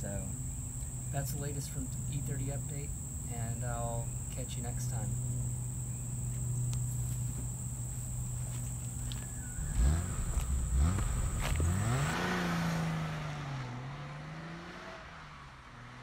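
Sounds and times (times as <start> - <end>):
car engine revving: 8.9 - 16.0.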